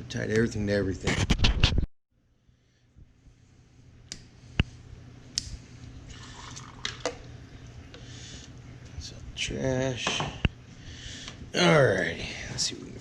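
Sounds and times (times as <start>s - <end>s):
low steady hum: 2.2s - 13.0s.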